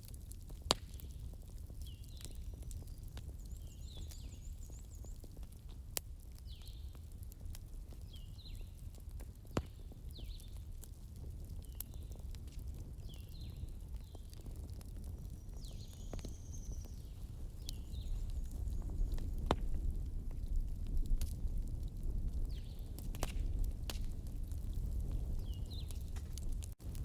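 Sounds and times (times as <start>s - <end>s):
fireplace crackling: 15.8s - 27.0s.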